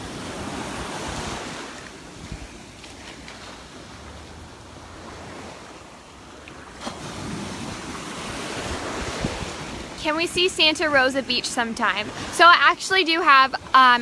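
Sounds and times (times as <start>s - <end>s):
surf washing onto beach: 0.0s - 14.0s
wind buffeting microphone: 7.0s - 12.4s.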